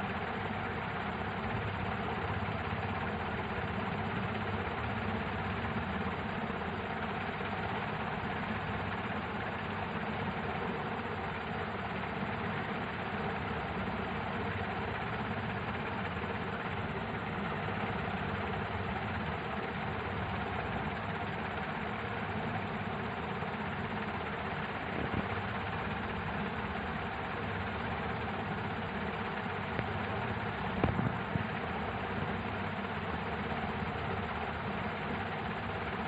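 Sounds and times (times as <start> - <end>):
mechanical hum and hiss: 0.0 - 36.0
sharp knocks: 30.8 - 31.2.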